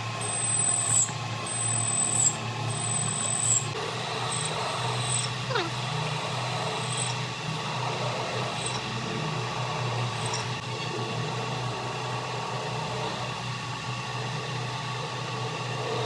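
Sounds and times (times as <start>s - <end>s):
faint whining tones: 0.0s - 10.6s
machine humming: 0.0s - 10.7s.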